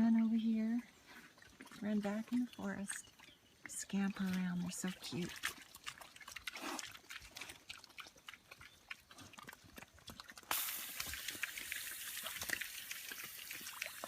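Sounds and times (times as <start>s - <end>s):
piglets grunting and snuffling: 3.7s - 14.0s.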